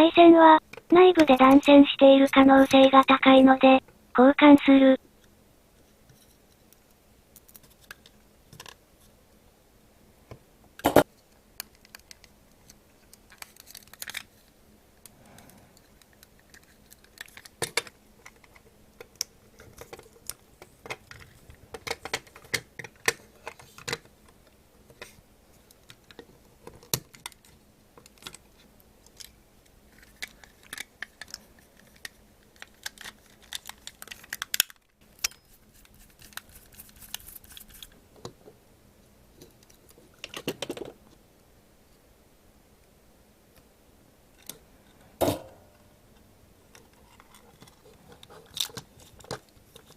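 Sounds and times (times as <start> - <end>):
plastic parts clicking: 16.0 - 24.1, 29.0 - 35.4.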